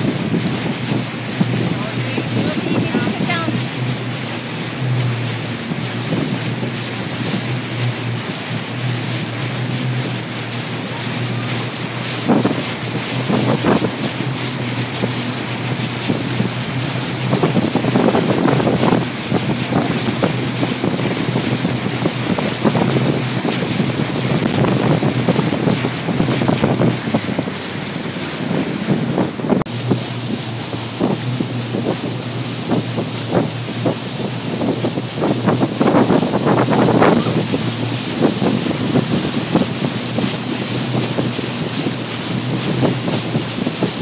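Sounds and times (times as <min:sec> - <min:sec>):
boat engine drone: 0:00.0 - 0:44.0
rushing water: 0:00.0 - 0:44.0
wind on microphone: 0:00.0 - 0:44.0.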